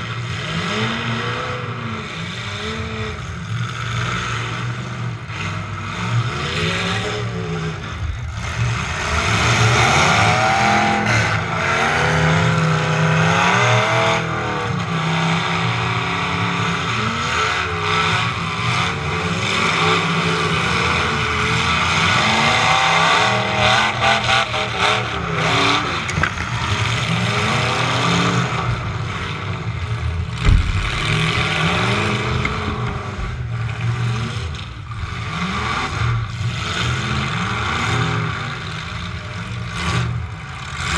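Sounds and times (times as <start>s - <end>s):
truck engine revving: 0.0s - 40.9s
rattling: 30.3s - 33.4s
sharp thump: 30.4s - 33.2s.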